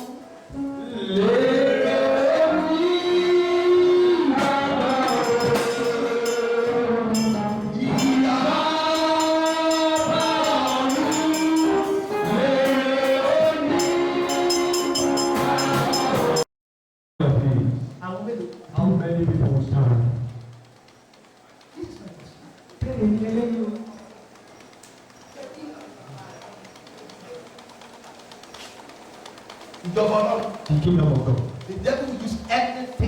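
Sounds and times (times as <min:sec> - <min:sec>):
choir singing gospel song: 0:00.0 - 0:16.4
rhythmic percussion beat: 0:04.2 - 0:16.5, 0:18.1 - 0:33.0.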